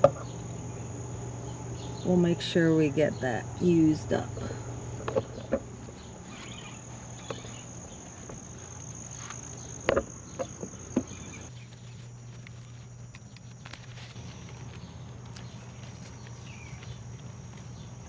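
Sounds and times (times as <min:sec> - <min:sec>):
crickets chirring: 0:00.0 - 0:18.0.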